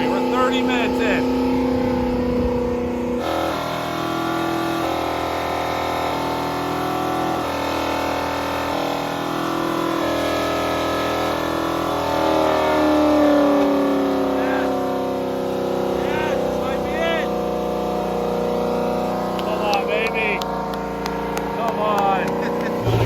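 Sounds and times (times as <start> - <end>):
car engine revving high: 0.0 - 23.0.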